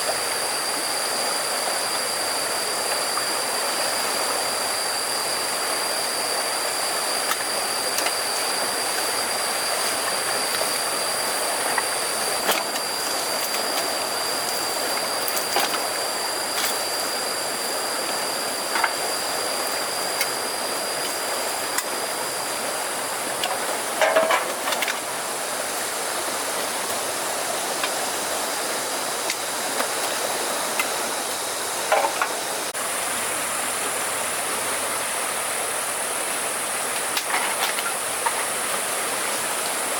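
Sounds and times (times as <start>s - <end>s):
river water flowing: 0.0s - 39.9s
clicks and knocks: 23.4s - 25.0s.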